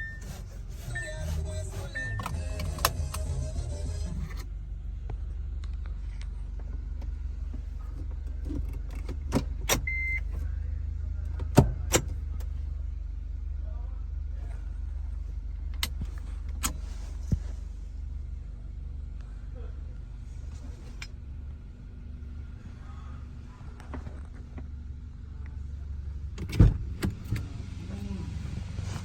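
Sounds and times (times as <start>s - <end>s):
car stereo music: 0.0s - 4.4s, 9.4s - 10.4s
car low hum: 0.0s - 29.0s
short beep: 0.9s - 2.4s.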